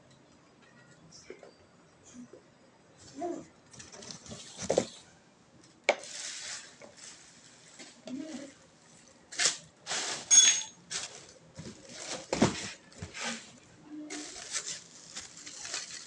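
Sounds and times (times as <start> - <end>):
packaging rustling and scraping: 6.0 - 8.6, 9.3 - 16.0
short metallic clink: 10.3 - 10.8.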